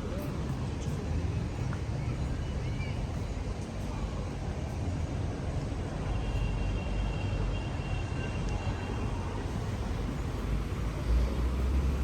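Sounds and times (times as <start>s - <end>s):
traffic rumble: 8.5s - 12.0s.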